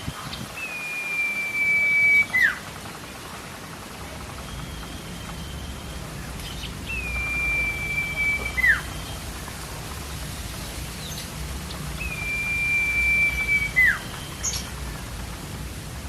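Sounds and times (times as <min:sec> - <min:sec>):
steady hiss: 0:00.0 - 0:16.0
bird whistled call: 0:00.1 - 0:02.6, 0:04.4 - 0:09.2, 0:12.0 - 0:14.8.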